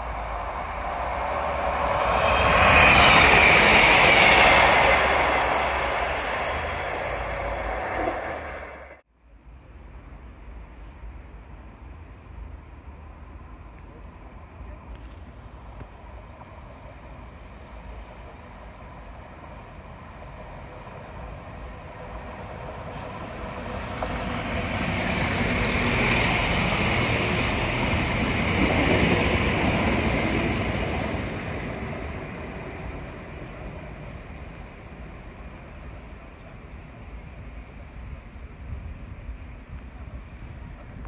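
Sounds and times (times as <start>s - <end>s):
high whine: 0.0s - 9.0s
train passing: 0.0s - 41.0s.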